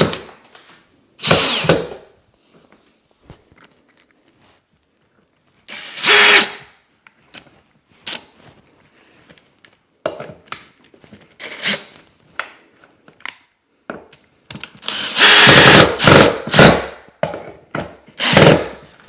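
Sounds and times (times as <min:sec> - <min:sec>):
power drill driving screw: 0:01.2 - 0:02.0, 0:05.7 - 0:06.7, 0:11.4 - 0:11.9, 0:14.8 - 0:17.0, 0:18.2 - 0:18.8.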